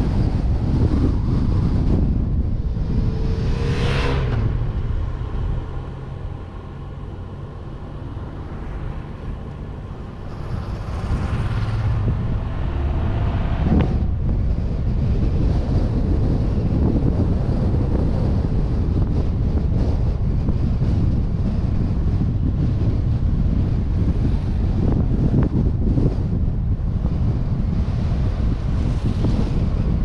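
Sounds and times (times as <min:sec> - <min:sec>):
car engine hum: 0:00.0 - 0:30.0
road and wind rumble: 0:00.0 - 0:30.0
whooshing swells: 0:00.8 - 0:07.1, 0:08.8 - 0:16.6.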